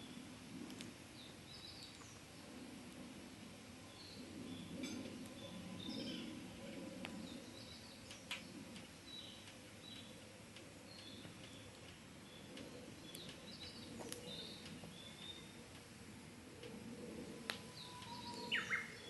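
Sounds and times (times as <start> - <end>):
fire burning with crackles: 0.0 - 19.0
birds chirping: 17.6 - 19.0.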